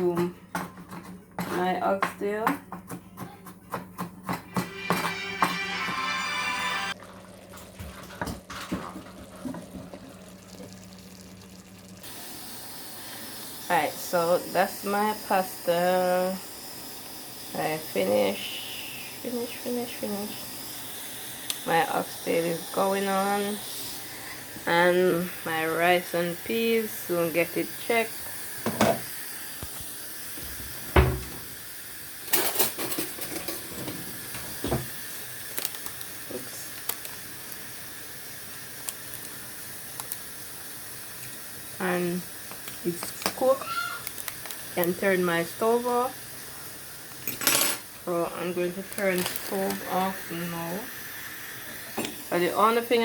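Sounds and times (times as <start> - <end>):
music: 4.5 - 7.0
pots and lids clattering: 32.3 - 34.8.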